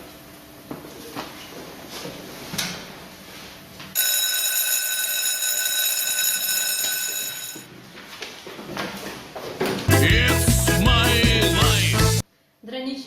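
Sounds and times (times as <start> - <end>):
electric school bell ringing: 4.0 - 7.7.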